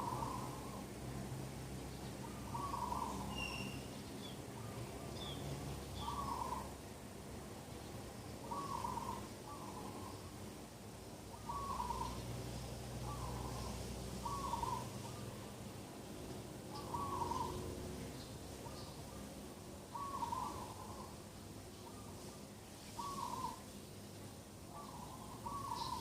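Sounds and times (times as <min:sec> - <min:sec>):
bird low hooting call: 0:00.0 - 0:00.9, 0:02.2 - 0:03.9, 0:06.0 - 0:06.8, 0:08.4 - 0:10.3, 0:11.3 - 0:12.3, 0:13.0 - 0:15.2, 0:16.7 - 0:17.8, 0:19.9 - 0:21.2, 0:23.0 - 0:23.7, 0:24.7 - 0:26.0
low steady hum: 0:00.0 - 0:26.0
small bird high chirps: 0:02.5 - 0:04.4.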